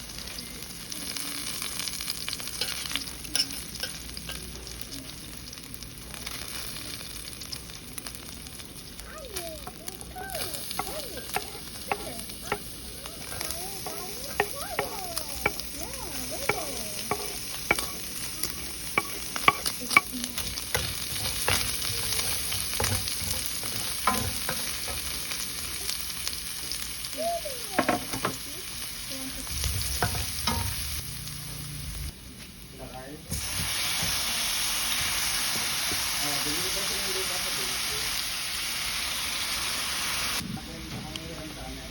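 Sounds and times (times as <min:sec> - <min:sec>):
food sizzling in a pan: 0:00.0 - 0:41.9
utensil scraping a pan: 0:10.4 - 0:25.4.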